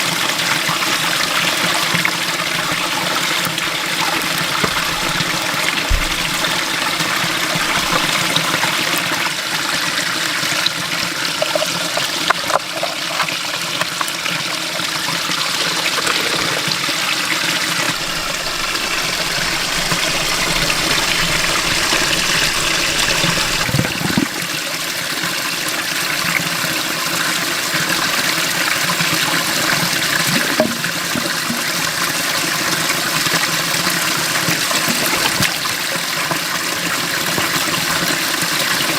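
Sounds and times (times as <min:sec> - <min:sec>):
running water rushing: 0:02.4 - 0:09.2, 0:15.2 - 0:25.0
small knocks: 0:04.6 - 0:08.2, 0:17.9 - 0:24.3.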